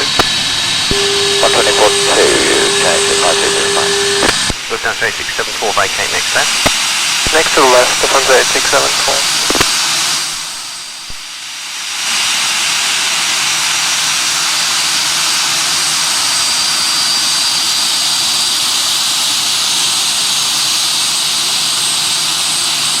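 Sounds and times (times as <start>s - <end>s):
jet engines roaring: 0.0s - 11.2s
high turbine whine: 0.0s - 11.6s.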